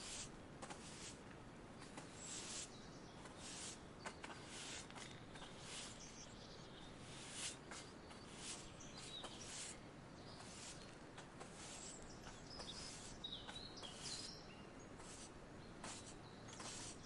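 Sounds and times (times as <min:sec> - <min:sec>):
soft steady hiss: 0:00.0 - 0:17.0
high bird chirps: 0:11.8 - 0:14.7.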